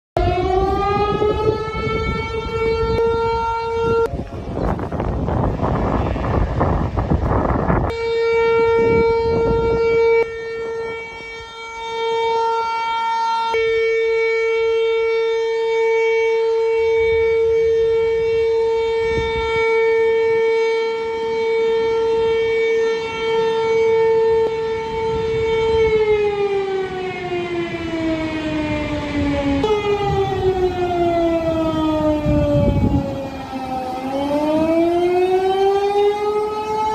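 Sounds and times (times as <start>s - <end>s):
warning siren wailing: 0.2s - 36.9s.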